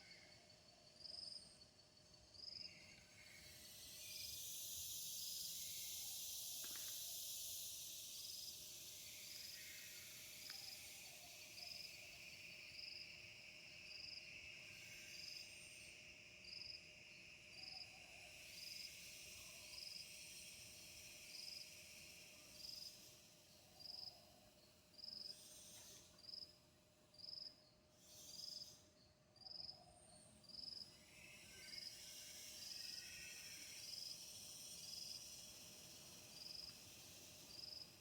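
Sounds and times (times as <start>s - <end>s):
insect chorus: 0.0s - 38.0s
short high insect chirp: 2.3s - 38.0s.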